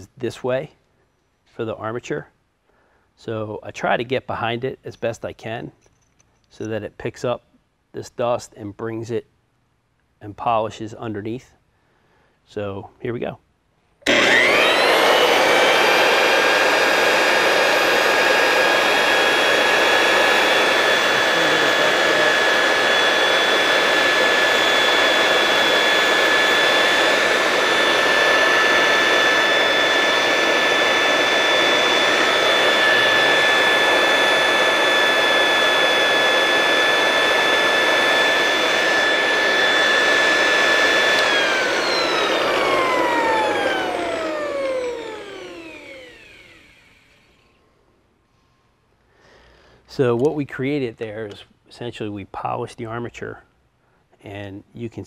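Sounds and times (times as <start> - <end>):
electric motor whining: 14.0 - 47.6.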